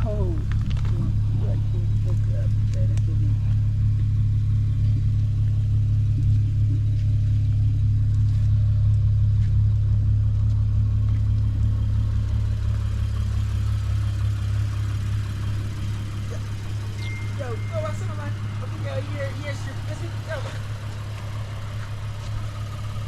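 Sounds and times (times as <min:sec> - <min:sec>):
car engine low drone: 0:00.0 - 0:23.0.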